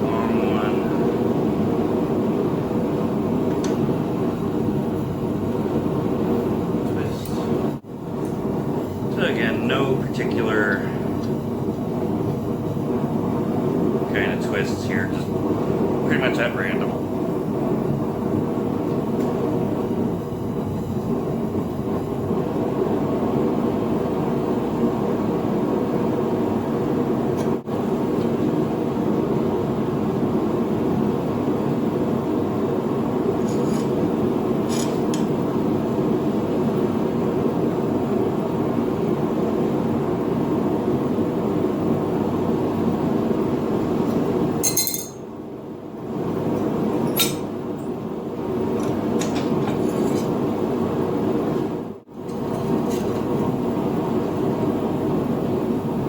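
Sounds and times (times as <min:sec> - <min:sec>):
forge roaring: 0:00.0 - 0:44.6
metal clinks: 0:44.6 - 0:45.2.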